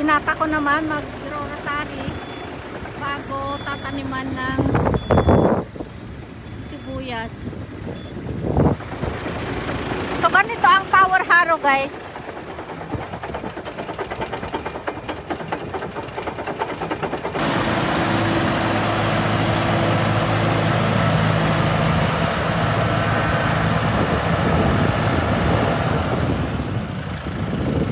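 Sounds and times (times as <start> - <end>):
tractor engine pulsing: 0.0 - 27.9
wide noise: 17.4 - 27.9.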